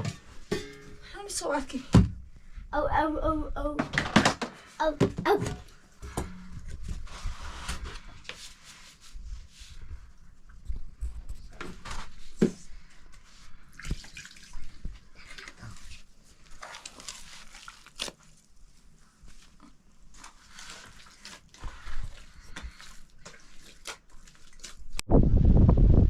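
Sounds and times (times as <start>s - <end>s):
water splashing and pouring: 13.7s - 18.2s, 20.1s - 25.0s.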